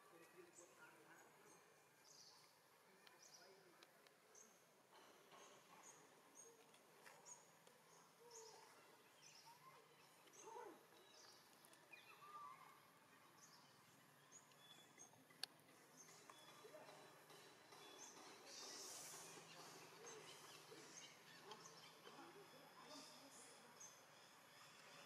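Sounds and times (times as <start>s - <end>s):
faint bird chirps: 5.4s - 25.0s.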